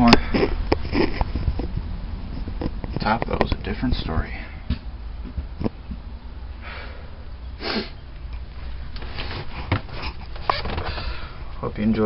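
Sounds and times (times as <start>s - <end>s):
steady low rumble: 0.0s - 12.0s
person breathing or sniffing: 6.6s - 8.0s.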